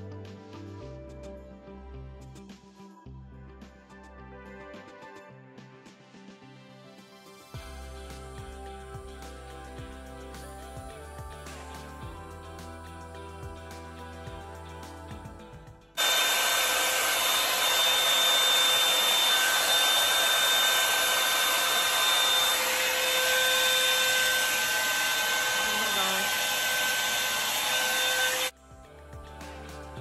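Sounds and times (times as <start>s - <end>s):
hot-air brush blowing: 16.0s - 28.6s.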